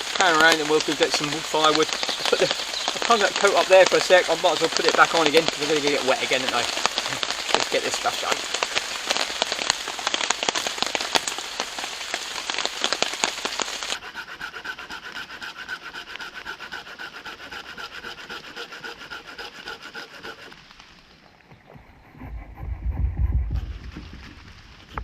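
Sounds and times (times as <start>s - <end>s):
heavy rain pattering: 0.0s - 14.0s, 23.6s - 25.0s
pruning saw cutting wood: 14.0s - 20.6s.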